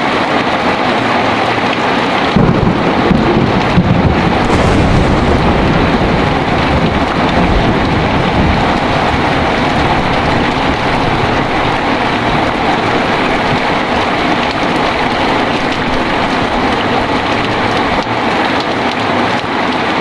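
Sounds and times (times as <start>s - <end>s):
heavy rain pouring: 0.0s - 20.0s
low thunder rumble: 2.3s - 18.6s.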